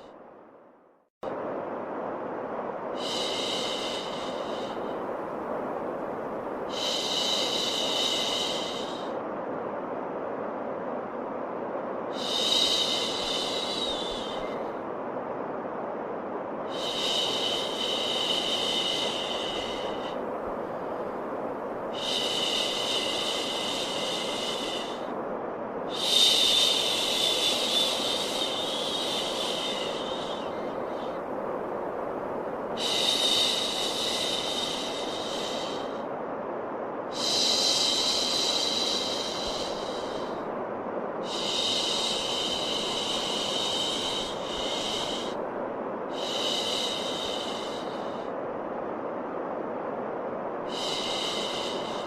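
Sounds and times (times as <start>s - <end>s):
white noise hiss: 0.0s - 52.0s.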